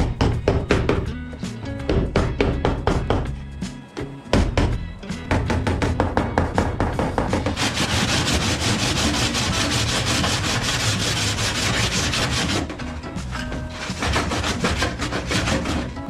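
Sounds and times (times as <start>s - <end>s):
sanding car body panel: 7.5s - 12.9s, 13.7s - 16.0s.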